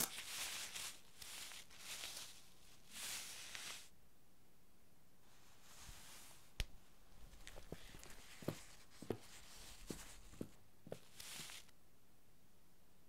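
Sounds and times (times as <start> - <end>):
cloth cape rustling: 0.0 - 3.9, 5.4 - 6.6, 7.2 - 11.7
footsteps on hard floor: 7.3 - 11.6.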